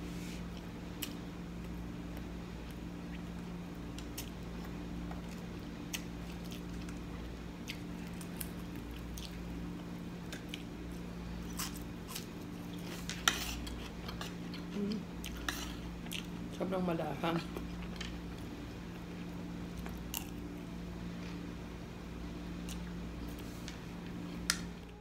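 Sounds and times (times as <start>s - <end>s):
steady low hum: 0.0s - 25.0s
quiet chewing: 0.5s - 16.5s.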